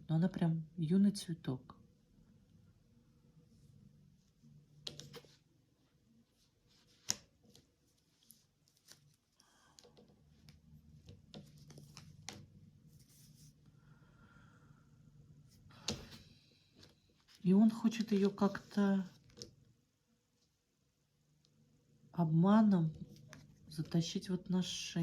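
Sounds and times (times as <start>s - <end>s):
quiet room hum: 0.0s - 25.0s
cards clicking and rustling: 4.8s - 5.4s, 6.9s - 12.5s.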